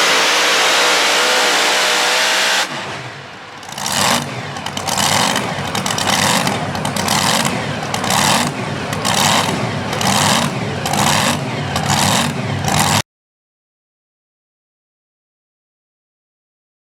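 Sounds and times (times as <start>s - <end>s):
truck engine running at high revs: 0.0s - 13.0s.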